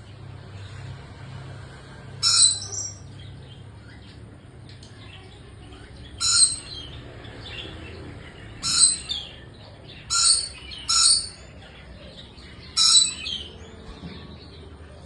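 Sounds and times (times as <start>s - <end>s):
bird calls: 2.2s - 4.2s, 6.0s - 15.0s.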